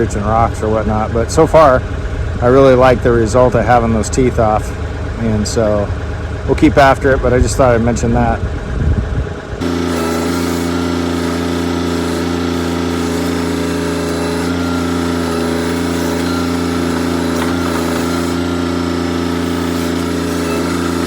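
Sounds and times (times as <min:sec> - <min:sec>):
diesel tractor engine running: 0:00.0 - 0:21.0.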